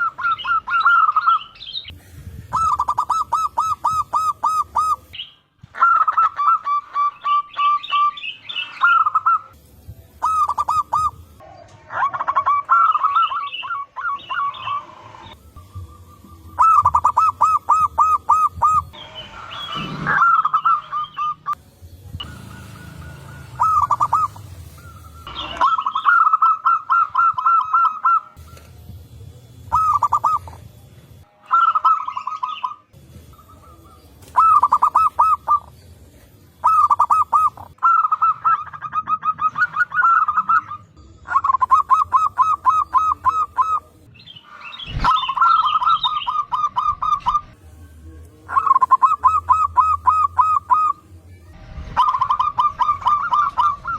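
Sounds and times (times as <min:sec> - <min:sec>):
doves cooing: 0:00.0 - 0:09.6, 0:10.2 - 0:21.6, 0:22.2 - 0:30.8, 0:31.5 - 0:44.0, 0:48.5 - 0:53.9.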